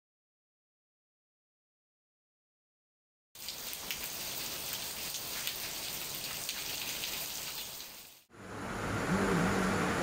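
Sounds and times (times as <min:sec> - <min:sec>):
steady rain: 0:03.4 - 0:10.0.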